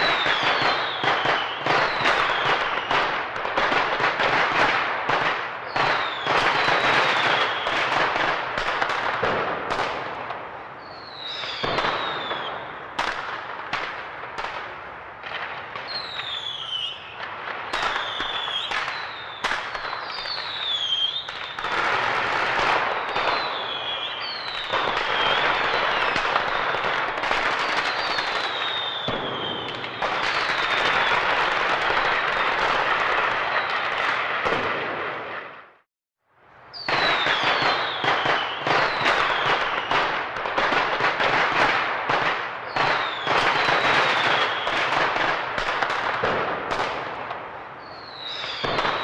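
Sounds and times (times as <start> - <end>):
falling firework whistles: 0.0 - 3.2, 5.6 - 8.2, 10.8 - 13.2, 15.3 - 35.9, 36.7 - 41.8, 42.6 - 45.9, 47.8 - 49.0
fireworks banging and crackling: 0.0 - 35.9, 36.6 - 49.0.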